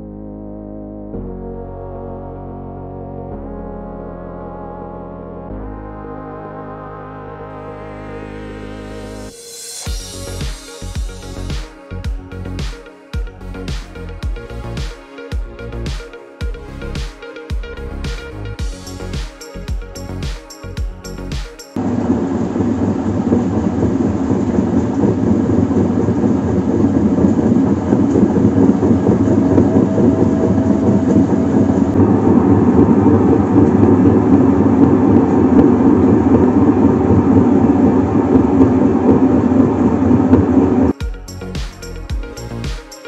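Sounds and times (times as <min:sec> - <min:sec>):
machine rumbling: 0:20.9 - 0:42.6.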